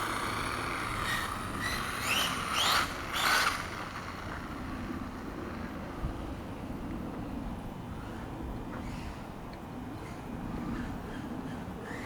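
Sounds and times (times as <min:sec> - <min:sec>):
two-stroke engine revving: 0:00.0 - 0:05.7.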